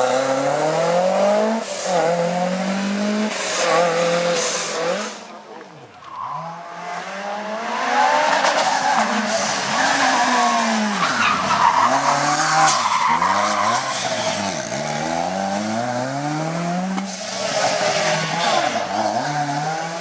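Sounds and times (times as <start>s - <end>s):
rally car engine accelerating: 6.0s - 20.0s.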